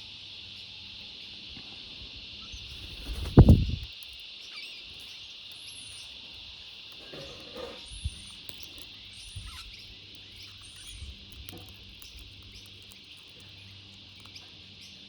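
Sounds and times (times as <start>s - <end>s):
soft low thumps: 2.8s - 3.9s.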